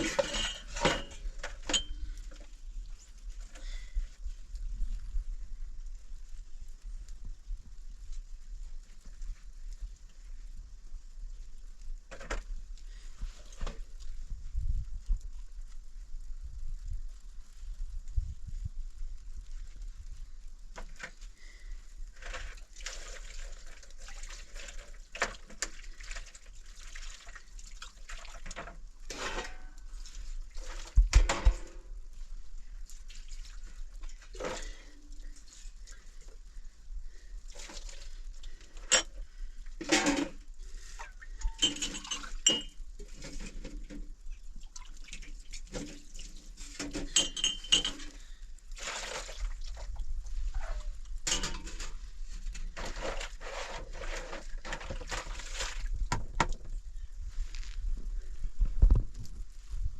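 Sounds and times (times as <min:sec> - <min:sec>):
cookware clinking and knocking: 0:41.5 - 0:42.8, 0:47.0 - 0:48.1.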